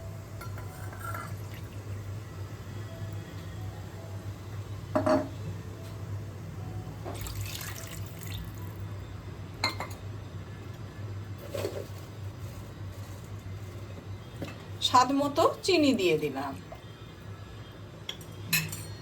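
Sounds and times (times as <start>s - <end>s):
water pouring into a pan: 7.1s - 8.8s.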